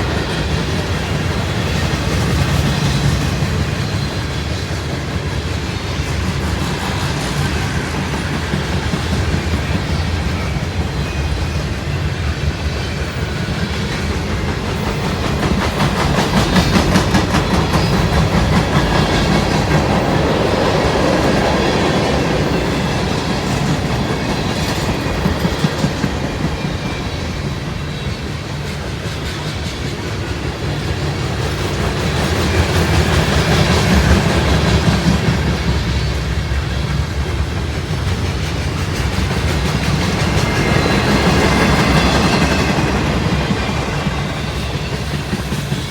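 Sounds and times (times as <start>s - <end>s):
train rumble: 0.0s - 45.9s
train wheels clicking over rail joints: 0.0s - 45.9s.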